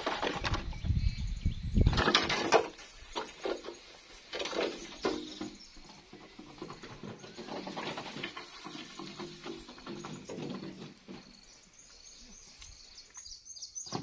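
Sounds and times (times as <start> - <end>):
knocking of wood or bamboo: 1.8 - 11.3.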